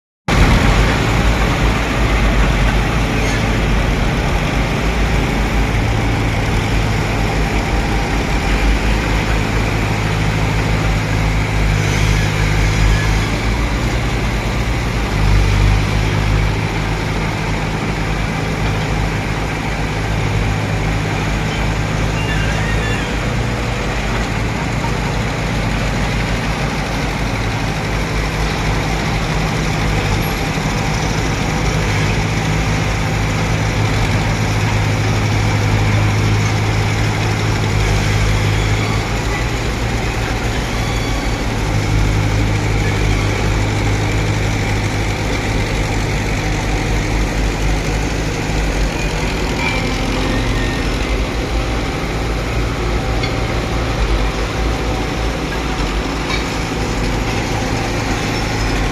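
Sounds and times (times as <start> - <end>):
bulldozer diesel engine running: 0.3 - 58.9.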